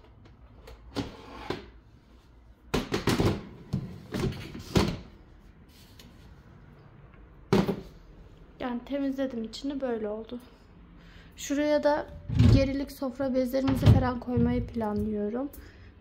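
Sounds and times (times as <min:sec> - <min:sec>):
knocks and clatters in cupboard: 0:02.7 - 0:05.1, 0:13.6 - 0:14.7.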